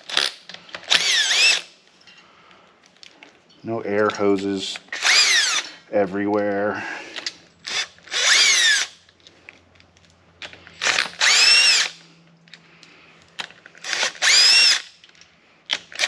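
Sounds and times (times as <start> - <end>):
impact wrench motor whine: 0.9 - 1.7, 4.9 - 5.6, 7.6 - 9.0, 10.8 - 12.0, 13.8 - 15.0.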